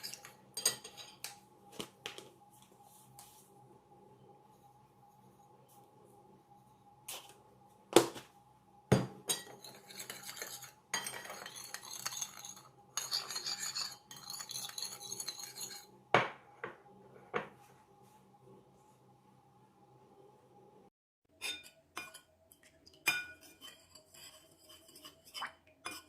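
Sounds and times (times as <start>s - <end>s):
utensil stirring and scraping: 0.0s - 1.6s, 9.3s - 16.0s, 21.3s - 26.0s
faint steady hum: 0.0s - 20.9s.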